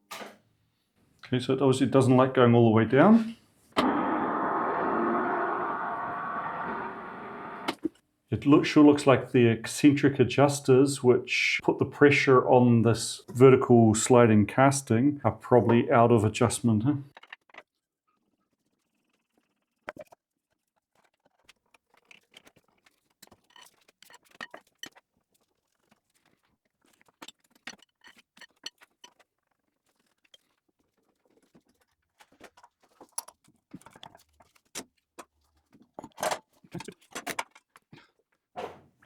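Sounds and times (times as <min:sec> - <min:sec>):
tools and metal parts clinking: 0:23.2 - 0:25.0, 0:26.9 - 0:30.6.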